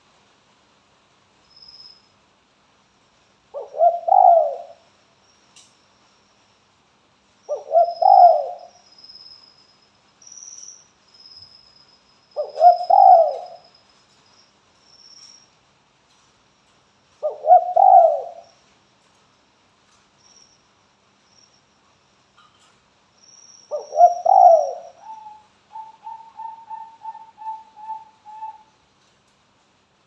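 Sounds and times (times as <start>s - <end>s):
dove cooing: 3.6s - 4.8s, 7.5s - 8.8s, 12.4s - 13.6s, 17.2s - 18.5s, 23.7s - 28.7s.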